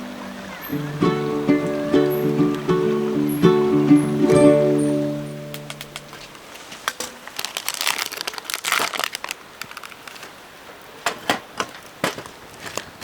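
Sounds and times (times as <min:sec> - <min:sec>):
crinkling and rustling: 0:05.6 - 0:10.4, 0:11.0 - 0:13.0.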